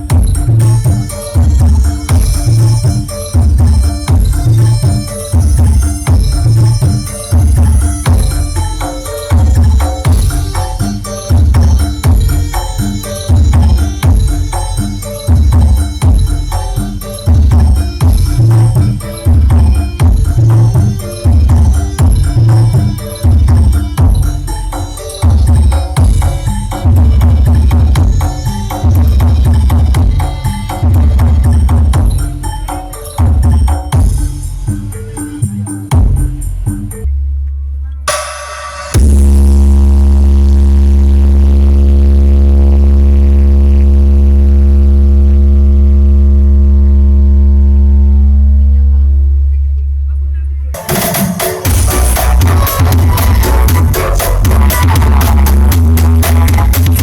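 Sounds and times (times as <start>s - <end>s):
loud bass-heavy music: 0.0s - 57.0s
deep bass note from sound system: 35.9s - 50.6s, 51.7s - 57.0s.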